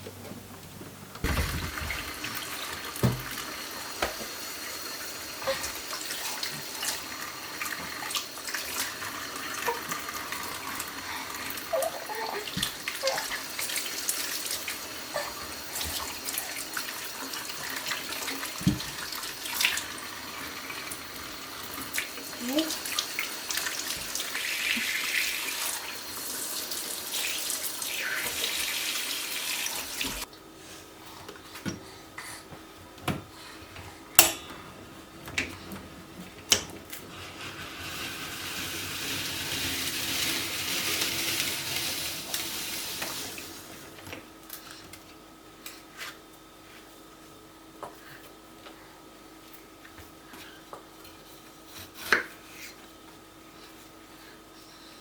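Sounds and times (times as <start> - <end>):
tap water running into sink: 1.2 - 30.3, 37.4 - 43.7.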